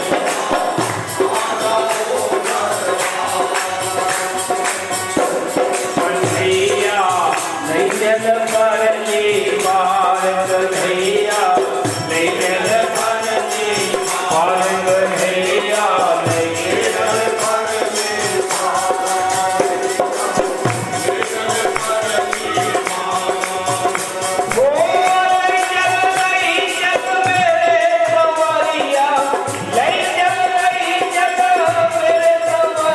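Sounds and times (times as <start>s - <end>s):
devotional singing: 0.0s - 32.9s
steady percussion beat: 0.0s - 32.9s.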